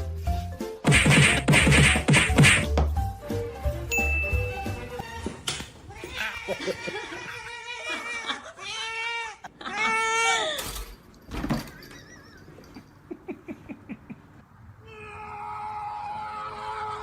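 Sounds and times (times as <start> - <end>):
sharp knock: 0.8 - 2.9
cat meowing: 5.9 - 10.6.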